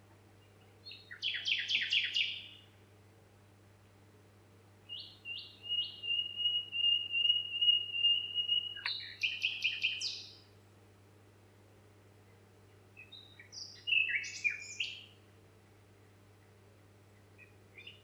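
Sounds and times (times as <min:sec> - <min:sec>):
faint steady low hum: 0:00.0 - 0:18.0
songbird singing: 0:00.4 - 0:02.8, 0:04.9 - 0:10.6, 0:12.2 - 0:18.0.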